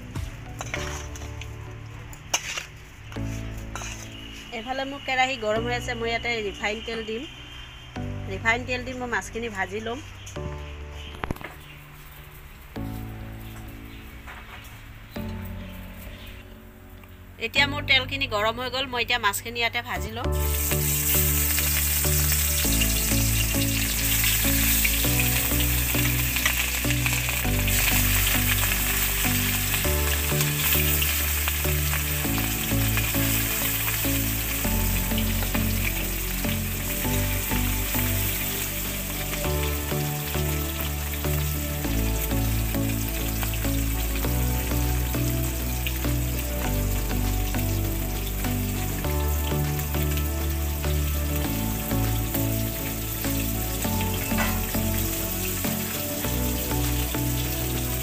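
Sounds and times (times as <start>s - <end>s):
fish sizzling in oil: 0.0s - 8.0s, 20.3s - 58.0s
soft background music: 0.0s - 58.0s.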